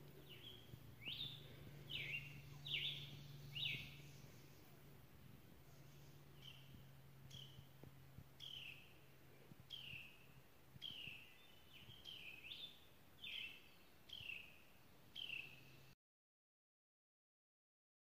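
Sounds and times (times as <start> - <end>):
faint low hum: 0.0 - 16.0
songbird whistled call: 0.3 - 4.3.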